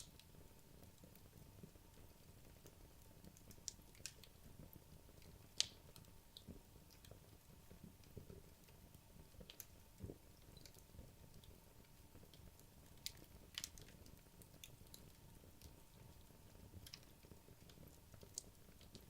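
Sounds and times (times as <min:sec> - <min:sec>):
fireplace logs crackling and popping: 0:00.0 - 0:19.0.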